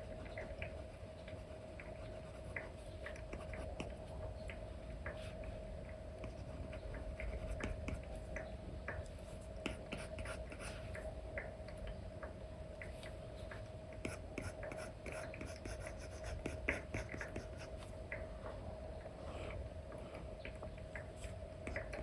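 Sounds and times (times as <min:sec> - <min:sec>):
faint steady hum: 0:00.0 - 0:22.0
stylus scratching and tapping screen: 0:12.8 - 0:18.0.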